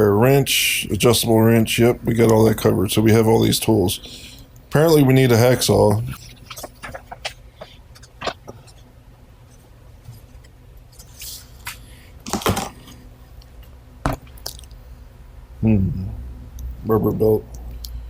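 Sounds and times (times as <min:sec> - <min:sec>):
low steady hum: 0:00.0 - 0:18.0
packaging rustle: 0:06.2 - 0:08.8.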